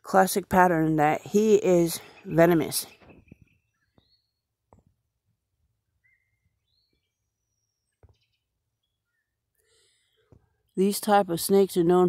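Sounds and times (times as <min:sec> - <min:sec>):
faint bird chirps: 0:01.9 - 0:04.7, 0:05.8 - 0:10.6.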